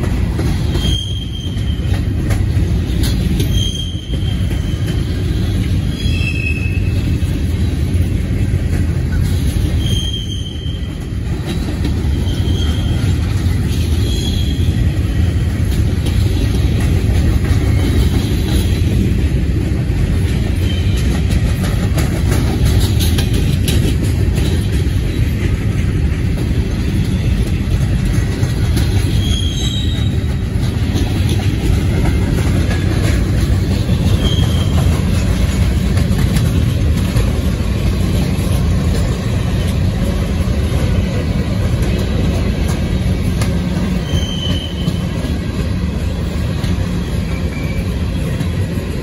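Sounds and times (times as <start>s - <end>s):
train wheels rumbling on rails: 0.0s - 49.0s
wheel squeals: 0.5s - 7.3s, 9.4s - 15.4s, 27.1s - 31.3s, 32.2s - 35.7s, 43.8s - 45.4s, 47.0s - 48.6s.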